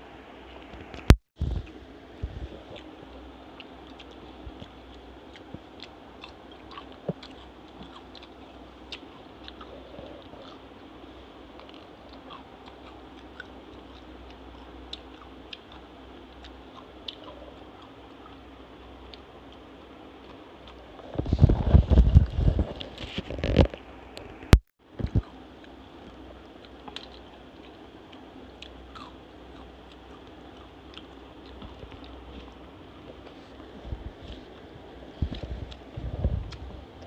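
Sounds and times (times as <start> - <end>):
low hum: 0.0 - 37.0
mouth clicks while chewing: 2.5 - 10.7, 25.0 - 37.0.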